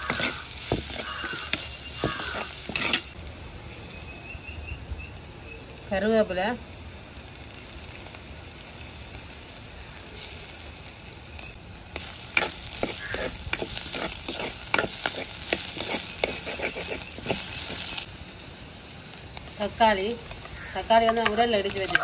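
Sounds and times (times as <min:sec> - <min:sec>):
spoon scraping and knocking pot: 0:00.0 - 0:03.1, 0:12.4 - 0:17.8
vegetables sizzling in oil: 0:00.0 - 0:22.0.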